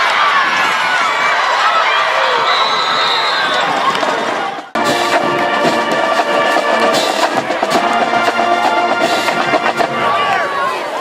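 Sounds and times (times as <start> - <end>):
steady drum beat: 4.8 - 10.4
brass band chords: 4.8 - 11.0.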